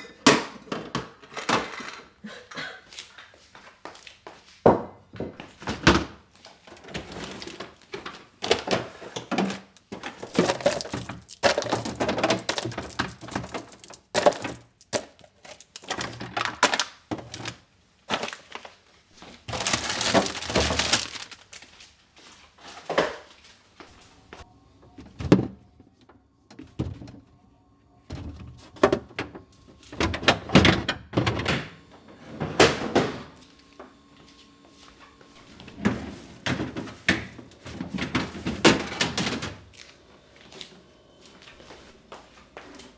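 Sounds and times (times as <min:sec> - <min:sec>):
kitchen items knocking and clattering: 0:00.0 - 0:02.6, 0:04.6 - 0:18.6, 0:19.2 - 0:21.6, 0:24.9 - 0:27.3, 0:28.1 - 0:31.7, 0:35.4 - 0:39.7.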